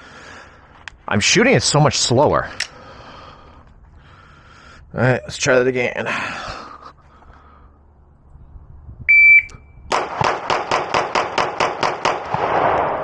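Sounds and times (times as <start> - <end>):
rapid pistol shots: 10.0 - 12.8.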